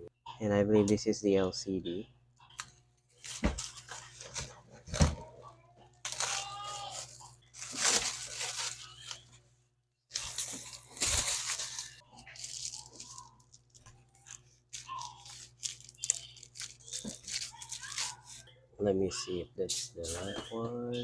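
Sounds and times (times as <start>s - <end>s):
scratchy crackling of phone parts: 10.1s - 18.4s.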